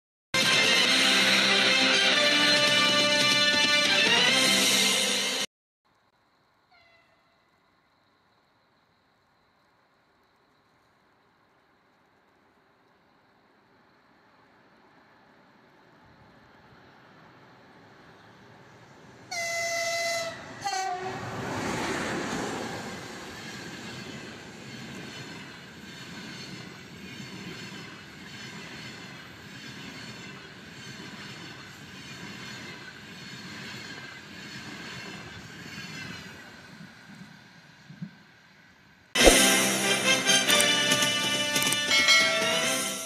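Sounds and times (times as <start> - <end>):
locomotive horn blasts: 19.3 - 21.3, 39.2 - 43.0
locomotive passing with rush: 20.3 - 37.8.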